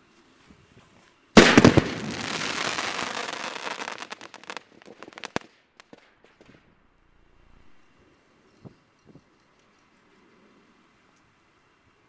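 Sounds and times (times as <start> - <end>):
crackling hiss: 0.0 - 6.2
explosion blast: 1.4 - 2.8.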